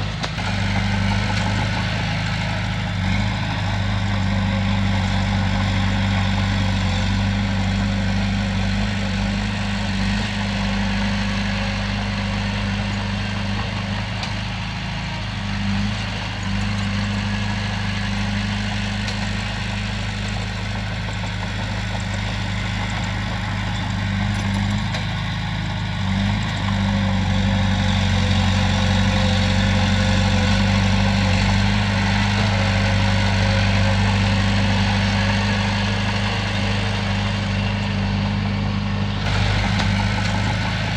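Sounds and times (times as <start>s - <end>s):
heavy diesel engine drone: 0.0s - 40.9s.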